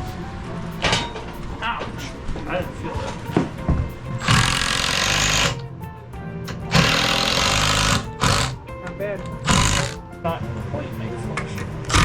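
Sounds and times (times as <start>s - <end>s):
background music: 0.0s - 12.0s
handheld power tool running: 4.2s - 5.6s, 6.6s - 8.7s, 9.4s - 10.0s.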